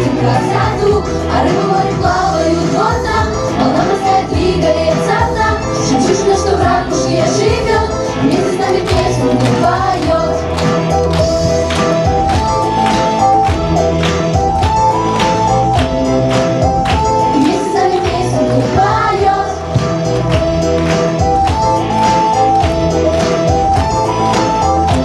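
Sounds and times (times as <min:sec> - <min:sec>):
pop song with singing: 0:00.0 - 0:10.9, 0:17.2 - 0:20.2.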